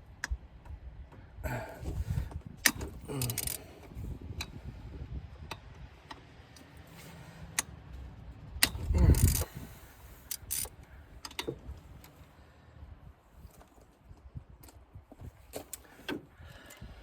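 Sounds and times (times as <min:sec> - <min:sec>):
wrench clicking on bolts: 0:02.6 - 0:03.6, 0:08.6 - 0:09.5, 0:10.2 - 0:10.7.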